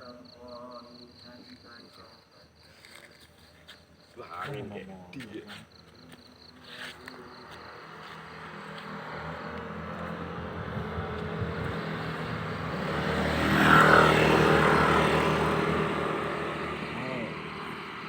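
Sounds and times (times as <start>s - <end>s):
vehicle passing by: 6.8s - 18.0s.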